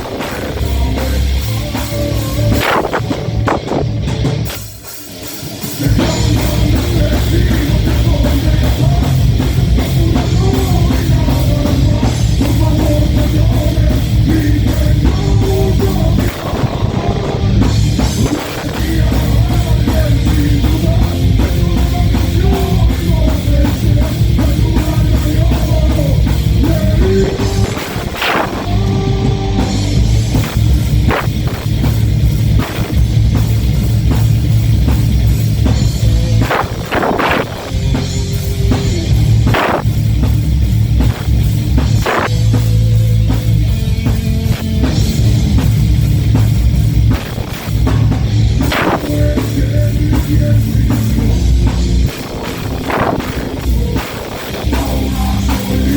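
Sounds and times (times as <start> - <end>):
live heavy metal band: 0.0 - 55.9.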